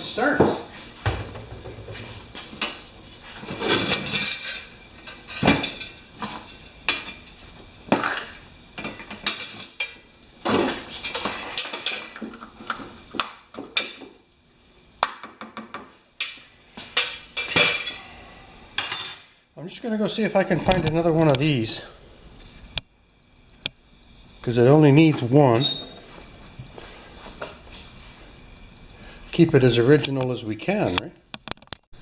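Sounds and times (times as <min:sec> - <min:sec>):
metal tools clinking and scraping: 0:03.4 - 0:07.4, 0:17.0 - 0:18.1.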